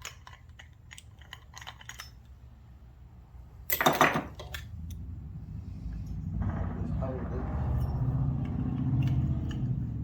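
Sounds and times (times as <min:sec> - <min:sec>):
metal tools clattering: 0:00.0 - 0:02.4, 0:03.7 - 0:04.6.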